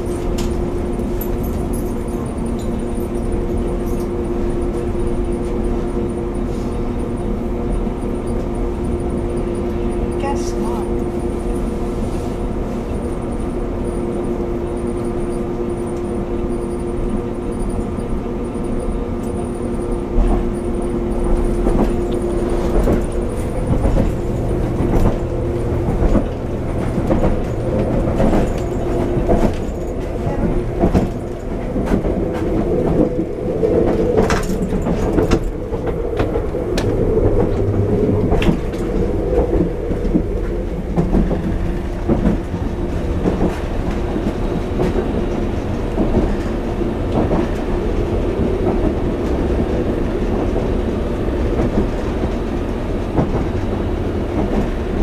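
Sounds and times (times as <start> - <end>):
train mechanical drone: 0.0 - 55.0
wheels clattering over rail joints: 20.2 - 55.0.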